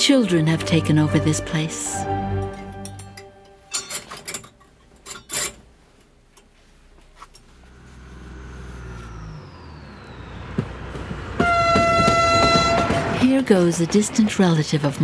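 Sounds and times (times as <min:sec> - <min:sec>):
train engine rumble: 0:05.7 - 0:15.0.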